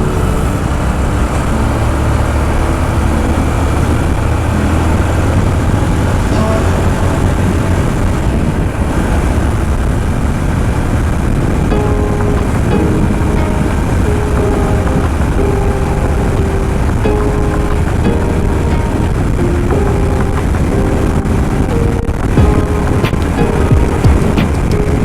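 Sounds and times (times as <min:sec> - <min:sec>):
road noise: 0:00.0 - 0:25.0
wind on microphone: 0:00.0 - 0:25.0.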